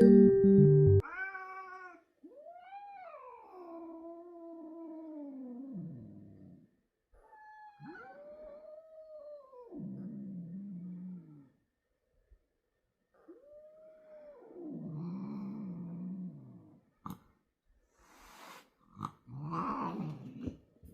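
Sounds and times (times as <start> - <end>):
music: 0.0 - 1.0
cat meowing: 1.0 - 4.6.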